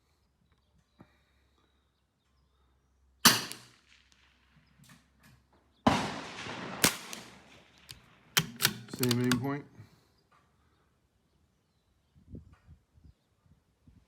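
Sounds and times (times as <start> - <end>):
rifle shot: 3.2 - 4.4, 5.8 - 9.5
loud gunshot report: 5.9 - 7.4
sharp click: 7.8 - 9.5.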